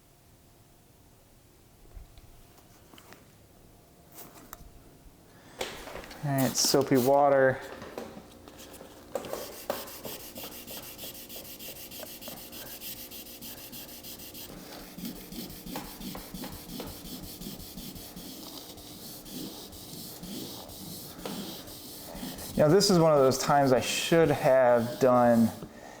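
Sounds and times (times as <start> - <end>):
clay mitt rubbing wet paint: 6.1 - 7.5, 8.6 - 25.7.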